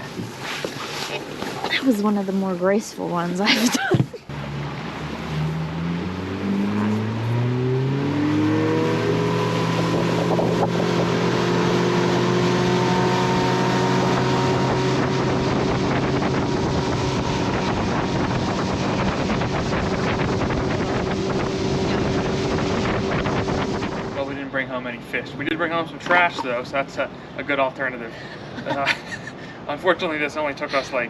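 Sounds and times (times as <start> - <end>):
outboard motor running: 0.0 - 24.8
wind on microphone: 5.6 - 24.4.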